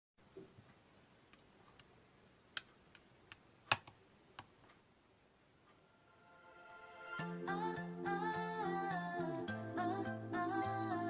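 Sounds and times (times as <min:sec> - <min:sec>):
faint irregular clicks and taps: 0:00.3 - 0:04.9.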